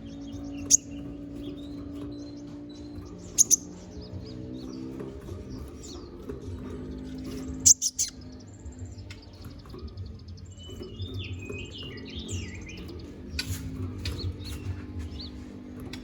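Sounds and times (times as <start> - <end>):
loud sharp bird chips: 0.0 - 6.1, 7.1 - 8.4
bird singing chattering song: 0.0 - 16.0.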